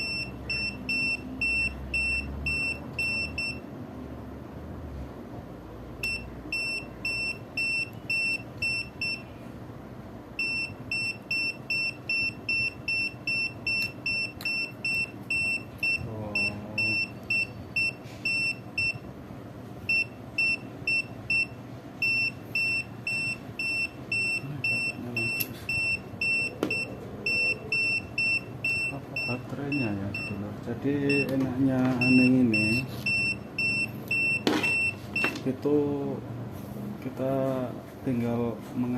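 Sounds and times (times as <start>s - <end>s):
high-pitched multimeter beeps: 0.0s - 3.6s, 6.0s - 9.3s, 10.4s - 19.1s, 19.9s - 30.4s, 31.0s - 35.4s.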